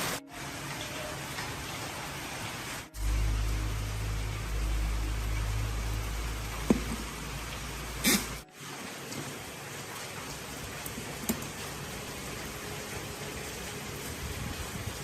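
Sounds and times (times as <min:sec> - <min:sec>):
steady hiss: 0:02.5 - 0:08.5.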